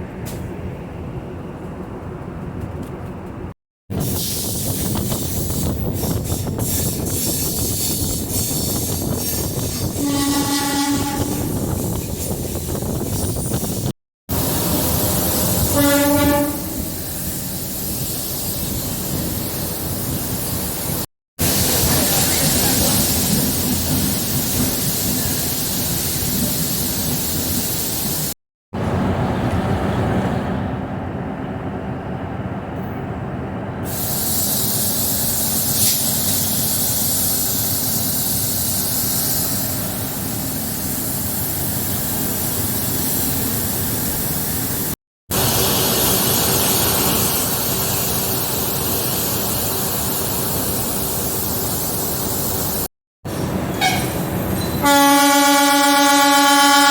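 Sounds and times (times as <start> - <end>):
train rumbling on rails: 0.0 - 56.9
train horn: 10.0 - 11.6, 15.6 - 17.0, 54.8 - 56.9.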